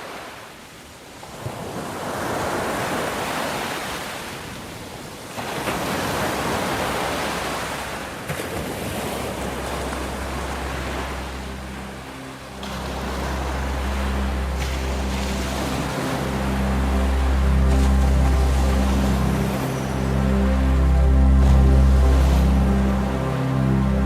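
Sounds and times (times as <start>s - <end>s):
ocean waves breaking: 1.1s - 24.0s
low hum of tones: 7.1s - 24.0s.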